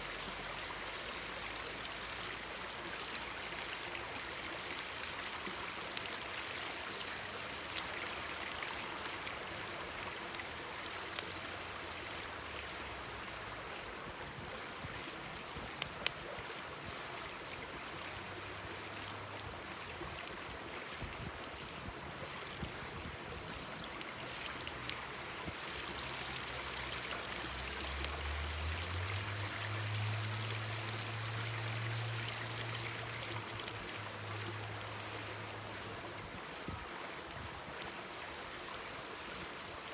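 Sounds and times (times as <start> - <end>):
stream babbling: 0.0 - 39.9
campfire popping: 10.0 - 12.0, 24.1 - 34.0.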